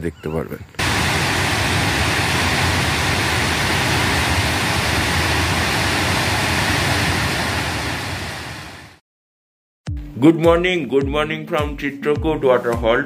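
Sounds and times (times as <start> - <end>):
waterfall rushing: 0.8 - 9.0.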